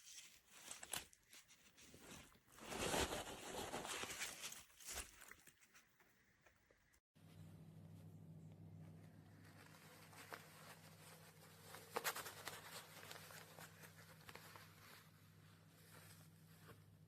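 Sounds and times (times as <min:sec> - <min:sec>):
low electrical hum: 0:07.2 - 0:17.0
faint rustling: 0:08.8 - 0:17.0.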